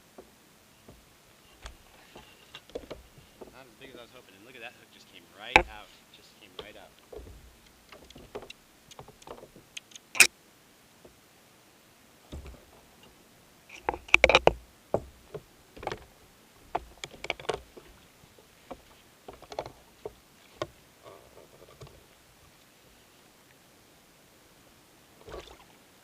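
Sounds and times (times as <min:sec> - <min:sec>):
gear knocking on kayak: 0:05.5 - 0:05.8, 0:06.5 - 0:09.7, 0:13.8 - 0:18.0.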